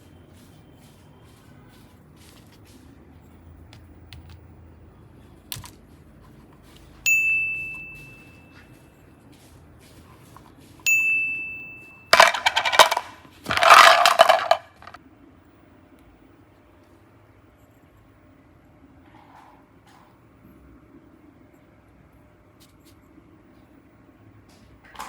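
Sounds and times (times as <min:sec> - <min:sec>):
bell-like dings: 0:07.1 - 0:08.5, 0:10.9 - 0:12.1.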